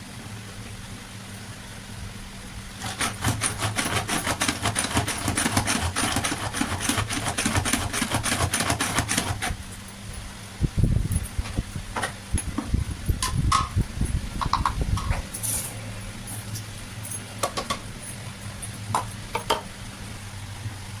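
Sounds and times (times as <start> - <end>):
steady low hum: 9.3 - 21.0
kitchen clicks and knocks: 14.4 - 15.4, 17.4 - 17.9, 18.9 - 19.7.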